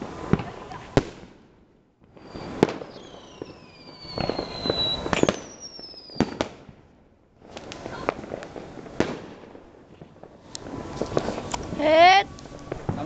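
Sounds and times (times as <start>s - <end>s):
fireworks bangs and crackling: 0.0s - 13.0s
falling firework whistles: 2.1s - 6.7s, 7.5s - 13.0s.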